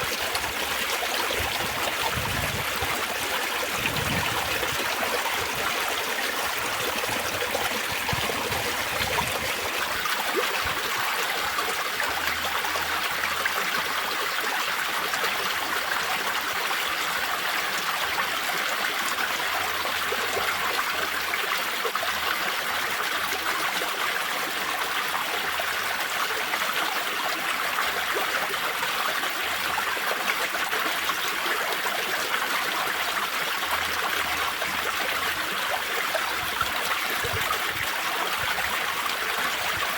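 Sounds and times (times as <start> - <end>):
water trickling over stones: 0.0 - 11.0.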